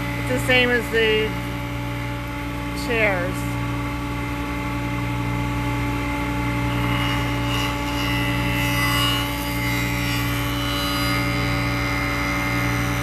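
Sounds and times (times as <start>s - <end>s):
jointer humming: 0.0s - 13.0s
cutter head cutting wood: 6.3s - 13.0s.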